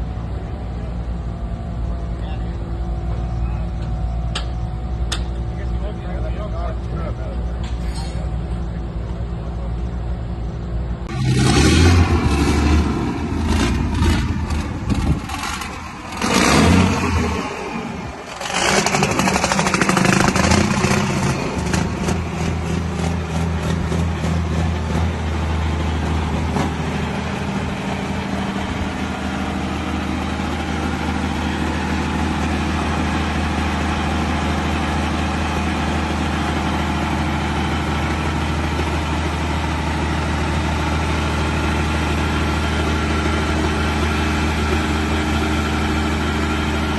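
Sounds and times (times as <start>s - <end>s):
engine revving and running: 11.1s - 46.9s.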